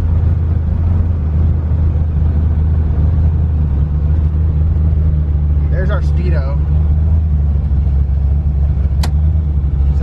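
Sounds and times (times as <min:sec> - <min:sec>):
car engine deep drone: 0:00.0 - 0:10.0.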